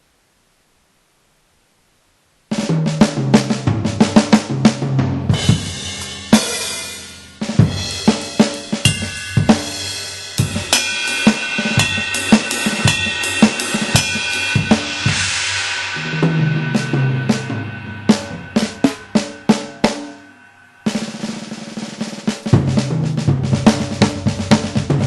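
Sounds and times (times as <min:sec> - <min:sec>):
electronic drum kit beat: 0:02.5 - 0:25.0
cymbal crash: 0:03.5 - 0:23.1.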